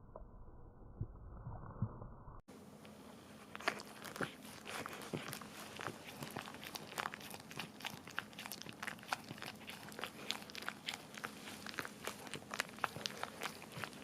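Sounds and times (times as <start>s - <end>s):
dog licking and lapping: 3.5s - 14.0s.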